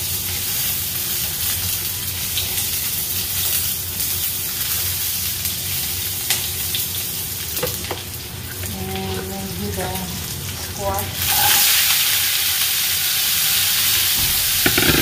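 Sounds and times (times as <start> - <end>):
vegetables sizzling in hot oil: 0.0 - 8.8, 9.6 - 15.0
spatula tapping on pan: 14.6 - 15.0.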